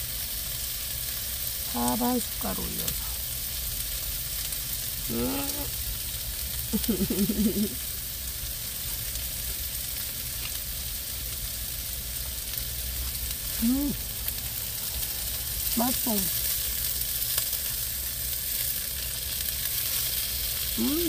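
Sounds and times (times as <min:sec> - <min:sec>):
meat sizzling in a pan: 0:00.0 - 0:21.0
person humming while eating: 0:05.1 - 0:05.8, 0:13.6 - 0:14.0, 0:20.8 - 0:21.0.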